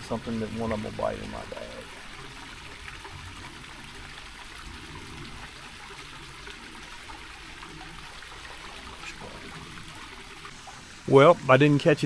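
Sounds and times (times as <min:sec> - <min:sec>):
stream trickling over stones: 0:00.0 - 0:12.0.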